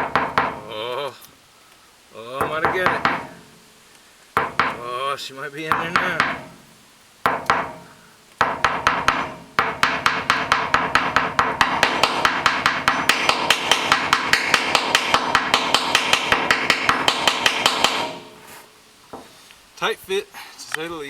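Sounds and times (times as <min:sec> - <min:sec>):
hammer tapping metal: 0:00.0 - 0:00.7, 0:02.4 - 0:03.5, 0:04.4 - 0:04.8, 0:05.7 - 0:06.6, 0:07.3 - 0:19.3.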